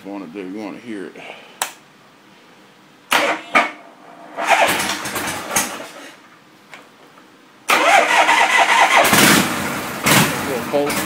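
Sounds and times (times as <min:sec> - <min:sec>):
motorcycle starter cranking: 0:04.4 - 0:06.0, 0:07.7 - 0:11.0.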